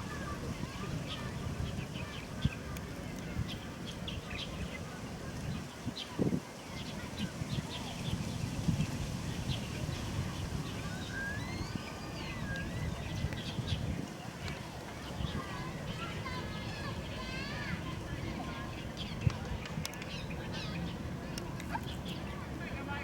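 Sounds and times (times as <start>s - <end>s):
birds chirping: 0.0s - 23.0s
gliding whistled bird call: 10.7s - 13.8s.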